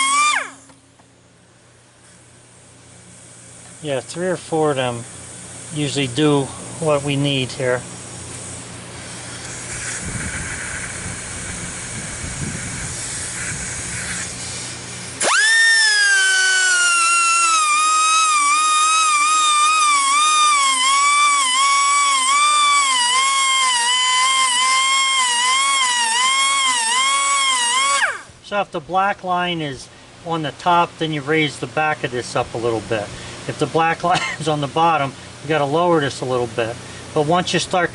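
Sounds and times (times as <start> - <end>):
pneumatic grinder whining: 0.0 - 0.8, 15.2 - 28.3
hissing: 9.4 - 28.3.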